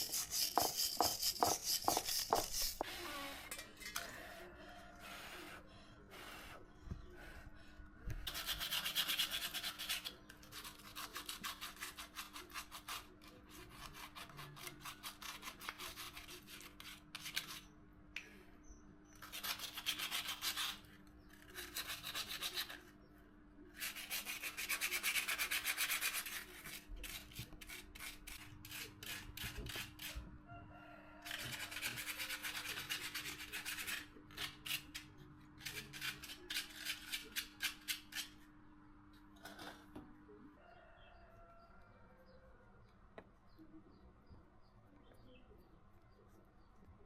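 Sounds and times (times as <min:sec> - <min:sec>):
hand tool rasping: 0:00.0 - 0:03.0.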